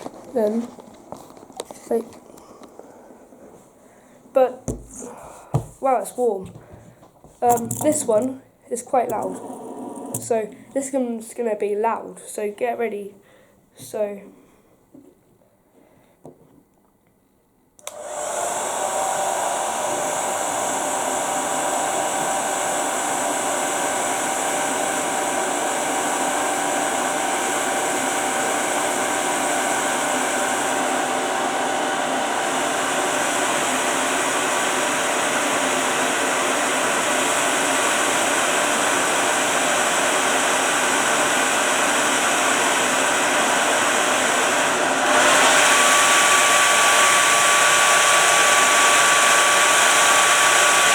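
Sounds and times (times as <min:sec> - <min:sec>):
hairdryer blowing: 0:04.7 - 0:08.3, 0:09.0 - 0:10.8, 0:17.8 - 0:50.9.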